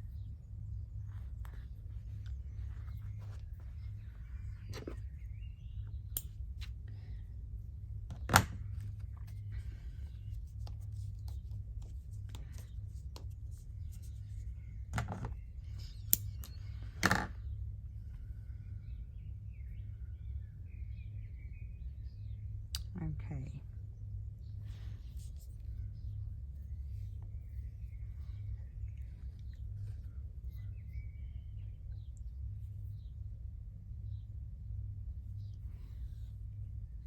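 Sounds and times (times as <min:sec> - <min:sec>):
steady low hum: 0:00.0 - 0:37.0
embroidery needle and scissors clicks: 0:06.1 - 0:06.7.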